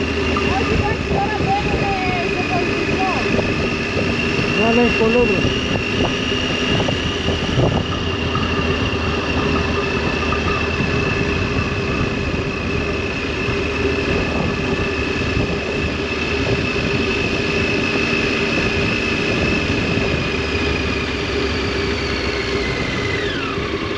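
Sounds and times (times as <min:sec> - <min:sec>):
motorcycle engine cruising: 0:00.0 - 0:23.9.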